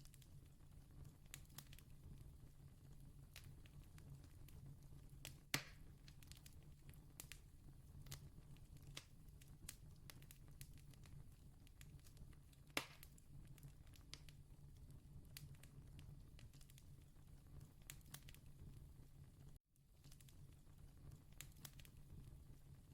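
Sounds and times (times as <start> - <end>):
campfire crackling: 0.0 - 19.0, 20.0 - 22.6
campfire snapping: 5.2 - 7.4, 8.0 - 14.4, 17.8 - 18.5, 21.1 - 22.0.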